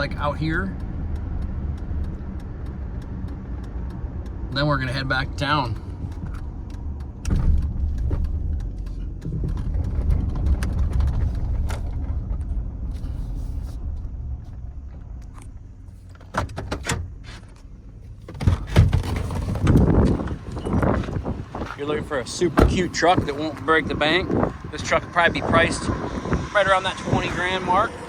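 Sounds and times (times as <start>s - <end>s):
sharp clicks and knocks: 0.0s - 13.0s
road noise: 0.0s - 28.0s
truck engine rumble: 0.0s - 28.0s.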